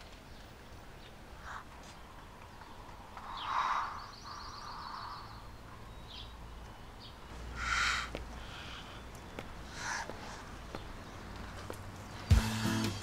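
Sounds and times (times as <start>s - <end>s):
small birds chirping: 0.0s - 13.0s
high bird trill: 3.2s - 11.3s.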